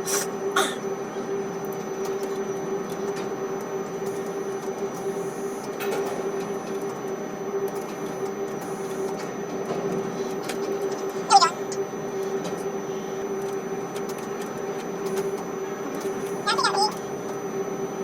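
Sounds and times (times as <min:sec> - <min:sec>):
crane machinery humming: 0:00.0 - 0:18.0
constant mid-pitched tone: 0:11.3 - 0:11.8, 0:16.4 - 0:17.0.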